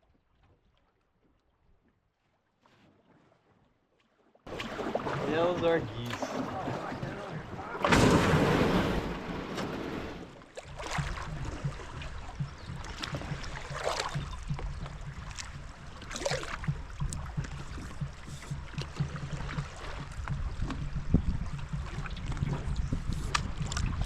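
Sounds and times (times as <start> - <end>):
paddles splashing in water: 0.1 - 24.0
steady low rumble: 5.6 - 24.0.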